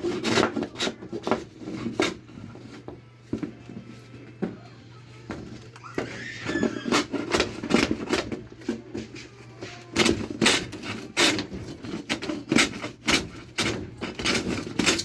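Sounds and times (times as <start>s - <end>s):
carpentry knocks and clatter: 5.3s - 15.0s.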